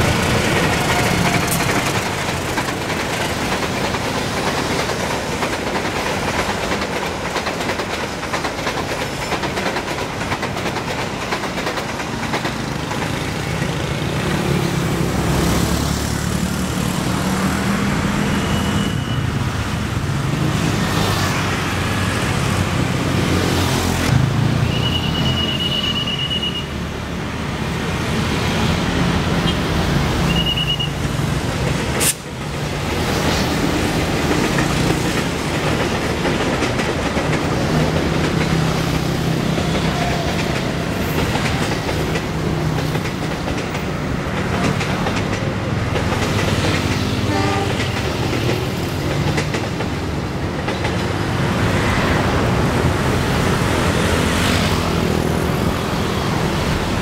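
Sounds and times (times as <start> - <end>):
passenger train passing: 0.0 - 57.0
wheels rumbling on rails: 0.0 - 57.0
high-pitched wheel squeals: 24.6 - 26.7.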